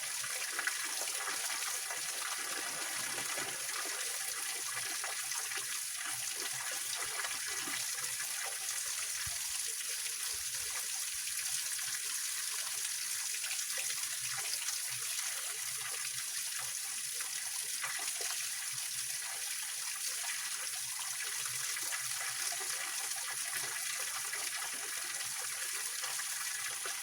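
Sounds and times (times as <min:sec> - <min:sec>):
water splashing over rocks: 0:00.6 - 0:04.8.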